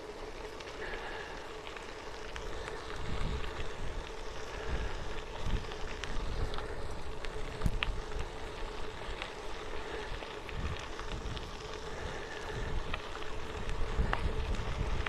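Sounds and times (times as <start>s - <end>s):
bicycle tyres crackling on stones: 0.0s - 15.0s
faint steady hum: 0.0s - 15.0s
wind buffeting microphone: 2.5s - 15.0s.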